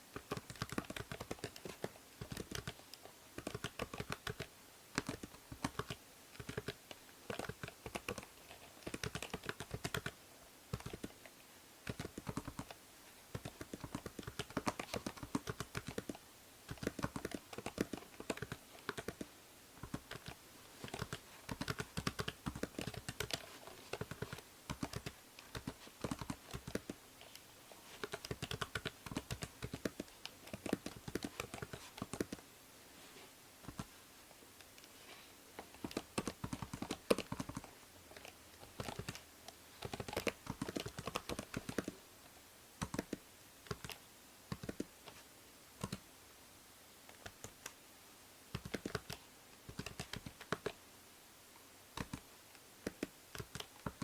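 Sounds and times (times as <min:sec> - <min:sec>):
microphone hiss: 0:00.0 - 0:54.0
computer keyboard typing: 0:00.2 - 0:11.2, 0:11.8 - 0:32.4, 0:35.8 - 0:42.0, 0:42.8 - 0:44.9, 0:45.8 - 0:46.0, 0:48.5 - 0:50.8, 0:52.0 - 0:54.0.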